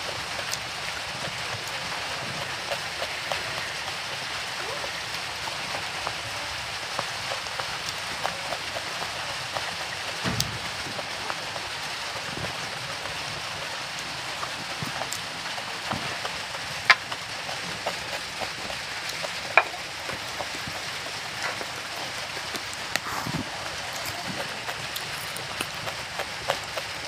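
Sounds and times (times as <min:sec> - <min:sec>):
chewing a raw chilli: 0:00.0 - 0:27.0
steady hiss: 0:10.2 - 0:27.0.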